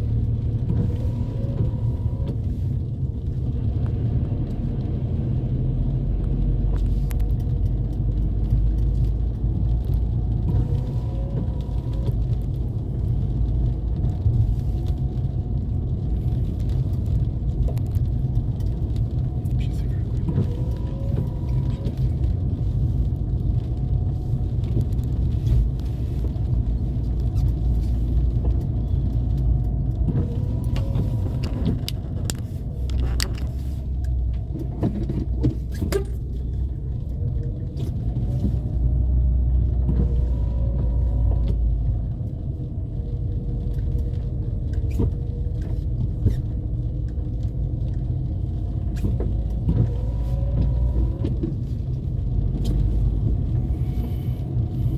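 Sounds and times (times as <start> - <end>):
car engine and road rumble: 0.0 - 54.9
clicks and rattles over bumps: 6.2 - 40.7.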